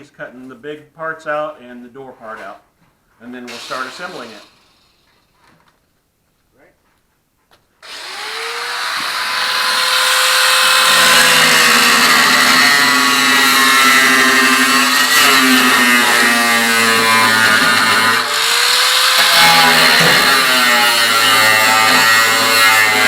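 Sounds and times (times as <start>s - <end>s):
power tool cutting metal: 3.5s - 5.4s, 7.8s - 23.0s.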